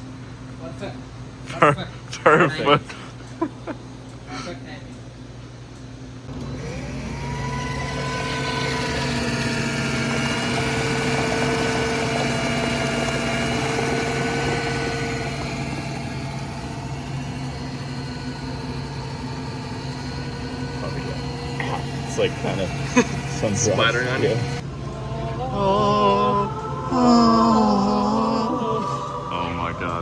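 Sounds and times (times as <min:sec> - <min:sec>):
drink dispensing machine whining: 0:06.2 - 0:30.0.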